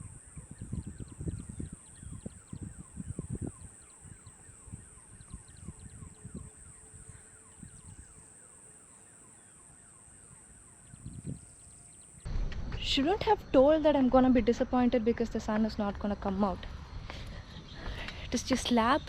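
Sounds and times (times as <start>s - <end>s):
wind buffeting microphone: 0.0s - 8.3s, 10.8s - 11.6s.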